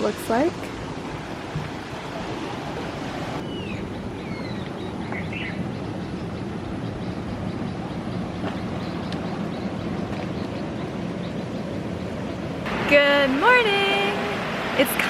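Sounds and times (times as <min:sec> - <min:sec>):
ocean waves breaking: 0:00.0 - 0:15.0
bird chirps: 0:03.4 - 0:11.7.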